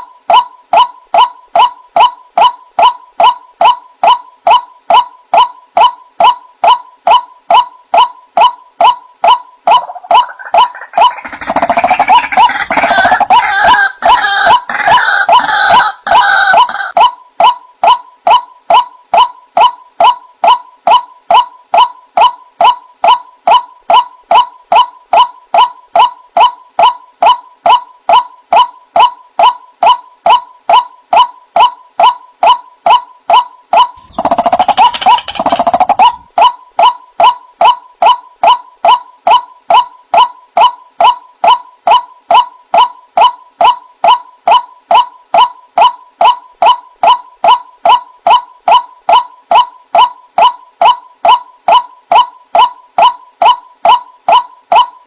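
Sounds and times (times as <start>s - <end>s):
waterhen croaking calls: 8.4s - 18.4s, 33.8s - 37.8s.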